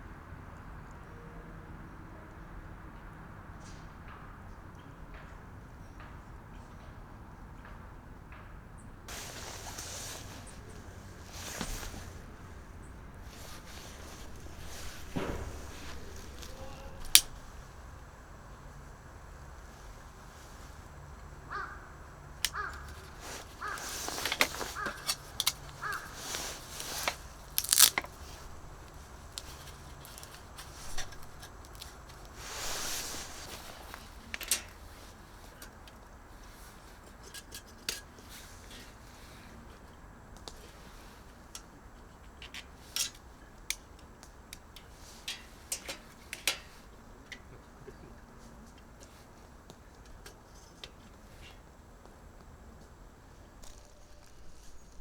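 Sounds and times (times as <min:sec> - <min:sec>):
bird calling: 0:09.1 - 0:17.7, 0:21.5 - 0:31.7
crunching and rustling: 0:09.1 - 0:18.0, 0:22.4 - 0:35.6
small hard objects clicking: 0:22.4 - 0:32.4.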